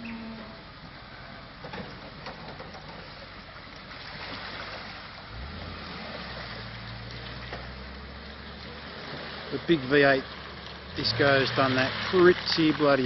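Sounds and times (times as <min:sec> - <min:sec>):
low engine drone: 0:00.0 - 0:13.0
rushing water: 0:00.0 - 0:13.0.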